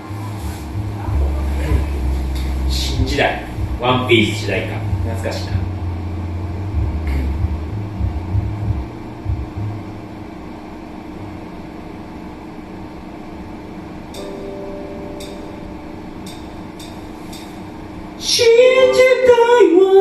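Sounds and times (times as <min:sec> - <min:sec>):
karaoke backing track chord: 0:00.0 - 0:09.6, 0:14.1 - 0:20.0
steady room hum: 0:00.0 - 0:20.0.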